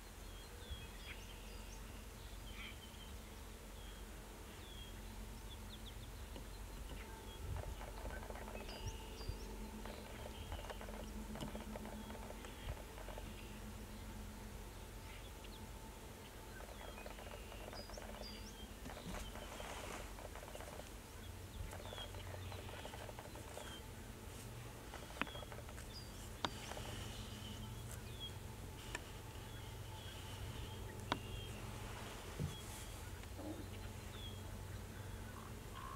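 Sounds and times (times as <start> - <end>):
low steady rumble: 0.0 - 35.9
small birds chirping: 0.0 - 35.9
sharp clicks: 21.7 - 23.8.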